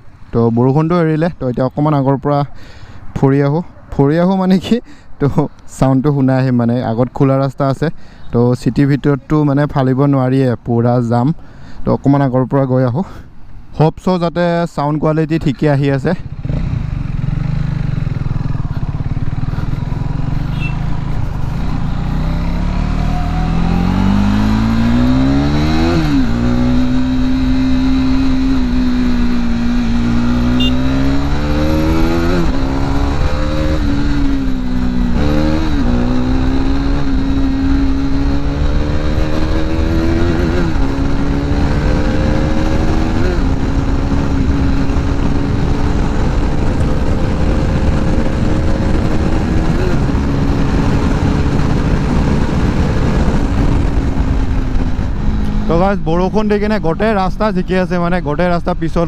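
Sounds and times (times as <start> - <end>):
motorcycle engine accelerating: 16.2 - 59.0.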